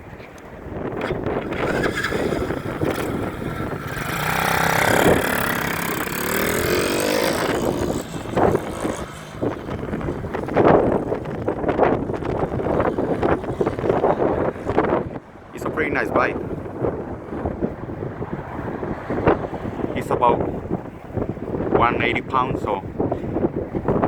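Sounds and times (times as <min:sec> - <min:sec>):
dirt bike engine revving: 0:01.0 - 0:17.4.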